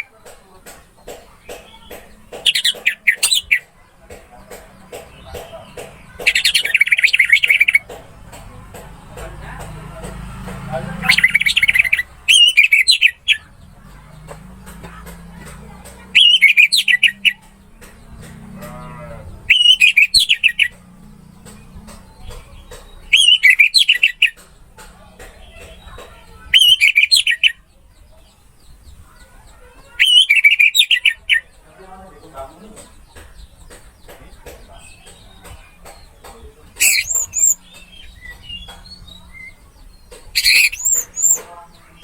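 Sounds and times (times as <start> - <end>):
thrush singing warbled phrases: 16.1 - 17.4.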